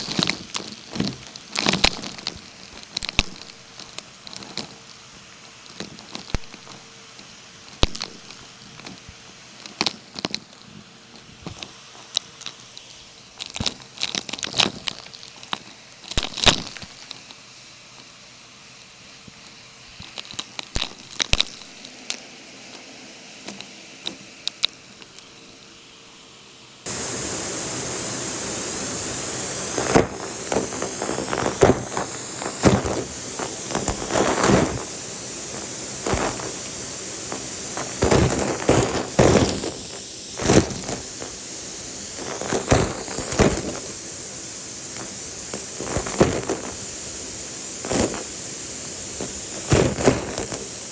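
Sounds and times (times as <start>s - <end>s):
vacuum cleaner running: 0.0s - 13.8s, 26.9s - 50.9s
clicks and crackles: 0.0s - 18.1s, 18.8s - 25.7s, 29.1s - 50.9s.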